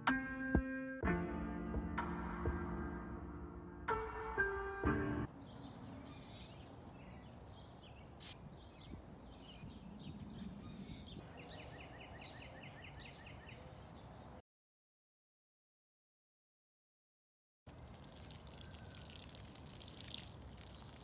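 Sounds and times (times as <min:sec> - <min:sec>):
music track: 0:00.0 - 0:05.3
small birds chirping: 0:05.3 - 0:14.4, 0:18.5 - 0:21.0.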